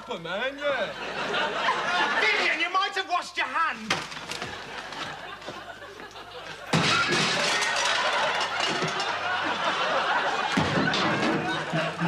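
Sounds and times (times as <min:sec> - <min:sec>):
audience laughing: 0:00.8 - 0:02.8, 0:04.4 - 0:06.7, 0:07.4 - 0:12.0.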